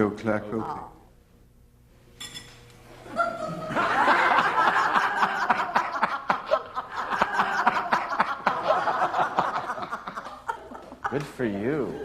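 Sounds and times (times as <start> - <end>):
group of people laughing: 3.0 - 12.0.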